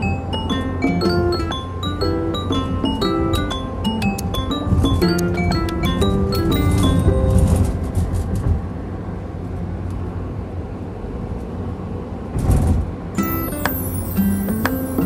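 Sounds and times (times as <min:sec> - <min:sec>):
background music: 0:00.0 - 0:07.8, 0:13.2 - 0:15.0
vehicle and traffic rumble: 0:00.0 - 0:15.0.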